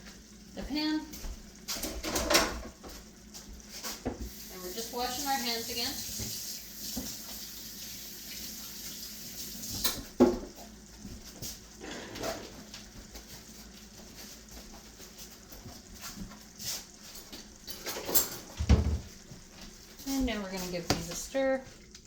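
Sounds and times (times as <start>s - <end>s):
water running from a tap: 0.0s - 22.0s
knocks and clatter at a sink: 1.2s - 4.4s, 6.0s - 7.2s, 9.7s - 13.4s, 17.2s - 19.4s, 20.0s - 21.5s.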